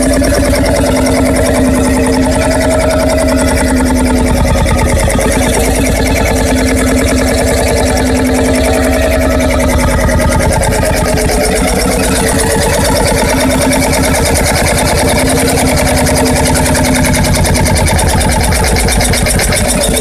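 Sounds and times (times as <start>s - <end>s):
two-stroke diesel engine running: 0.0s - 20.0s.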